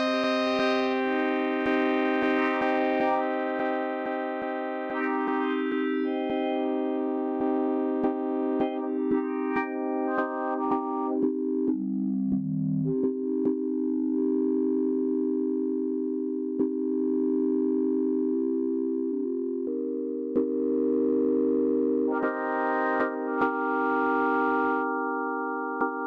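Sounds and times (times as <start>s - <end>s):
synth chords: 0.0s - 11.9s, 18.4s - 26.0s.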